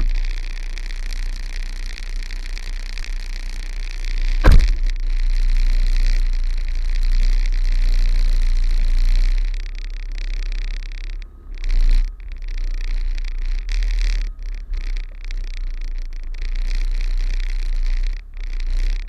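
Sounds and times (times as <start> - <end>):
diesel truck engine rumbling: 0.0 - 19.0
sharp thump: 4.4 - 4.9.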